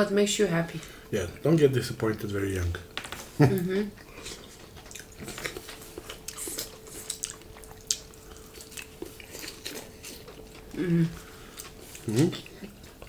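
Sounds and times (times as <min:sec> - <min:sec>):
person chewing: 0:02.8 - 0:13.0.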